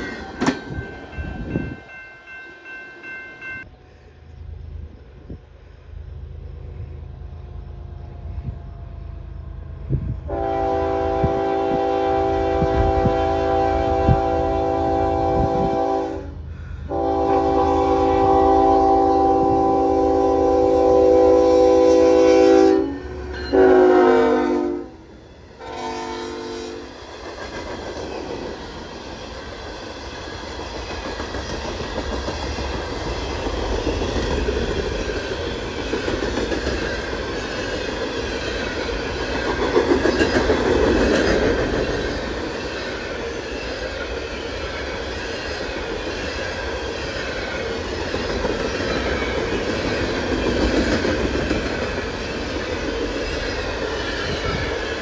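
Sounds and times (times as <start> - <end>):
train rumble and wheel clatter: 0.0 - 55.0
locomotive horn blasts: 10.3 - 25.0, 25.6 - 26.9.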